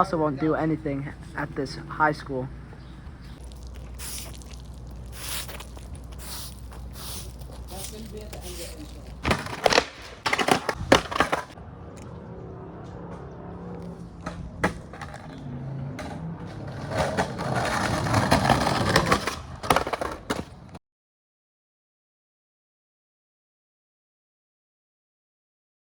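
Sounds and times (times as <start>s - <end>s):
skateboard wheels rolling: 4.8s - 20.8s
skateboard clacks: 9.2s - 11.6s, 14.2s - 20.8s.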